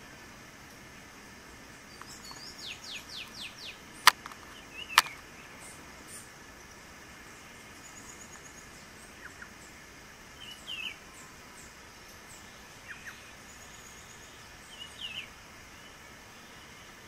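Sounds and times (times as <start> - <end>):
steady ambient hiss: 0.0 - 17.0
bird call notes: 1.9 - 5.8.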